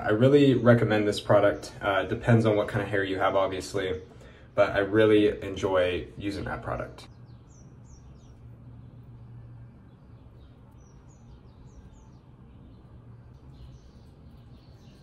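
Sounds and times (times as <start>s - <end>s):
low room hum: 0.0s - 15.0s
faint bird chirps: 6.3s - 15.0s.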